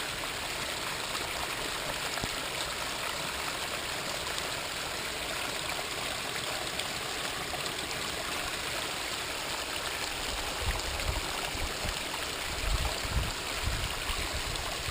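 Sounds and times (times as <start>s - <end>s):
water splashing over rocks: 0.0s - 14.9s.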